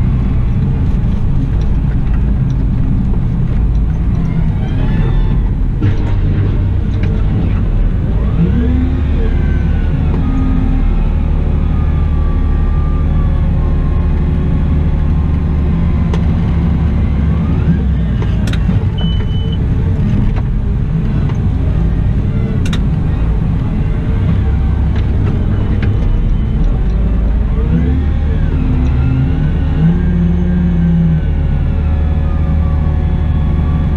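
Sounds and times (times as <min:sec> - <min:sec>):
rising and falling whines: 0:00.0 - 0:33.9
wheel loader engine drone: 0:00.0 - 0:33.9.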